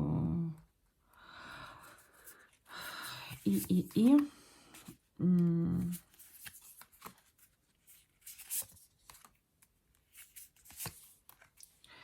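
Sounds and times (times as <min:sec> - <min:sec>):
cards rustling and tapping: 0:02.0 - 0:05.0, 0:05.8 - 0:11.8.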